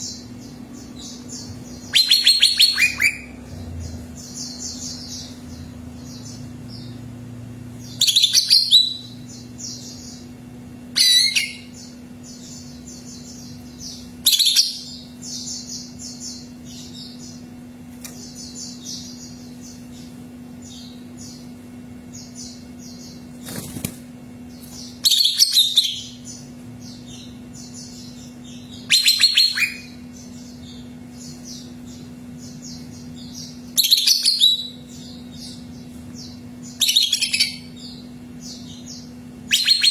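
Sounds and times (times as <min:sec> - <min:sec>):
rapid bird chattering: 0:00.0 - 0:06.4, 0:24.8 - 0:39.9
bird singing sweeping phrases: 0:00.0 - 0:07.1, 0:07.8 - 0:17.6, 0:18.2 - 0:39.9
steady low hum: 0:00.0 - 0:39.9.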